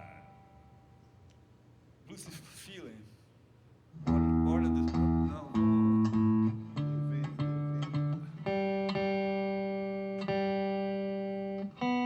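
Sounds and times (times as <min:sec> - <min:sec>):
guitar picking single notes: 0:04.0 - 0:12.0.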